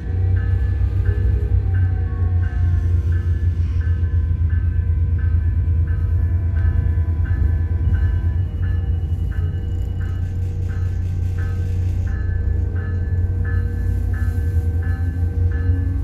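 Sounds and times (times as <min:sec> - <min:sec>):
train rumbling inside car: 0:00.0 - 0:16.0.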